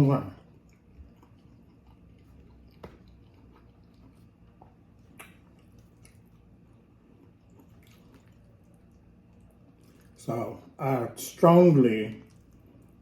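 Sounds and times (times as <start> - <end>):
low steady hum: 0.0 - 13.0
person chewing food: 0.4 - 10.2, 12.1 - 13.0.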